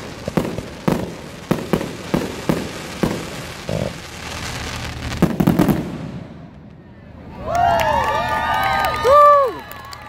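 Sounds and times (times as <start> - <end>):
fireworks bangs: 0.0 - 7.4
fireworks crackling hiss: 0.0 - 7.4.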